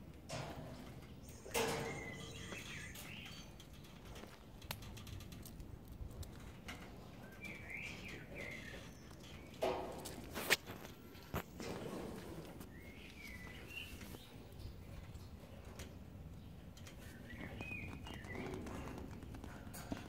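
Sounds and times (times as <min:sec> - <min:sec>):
faint outdoor background: 0:00.0 - 0:20.0
small birds chirping: 0:01.0 - 0:05.1, 0:06.4 - 0:10.3, 0:12.6 - 0:20.0.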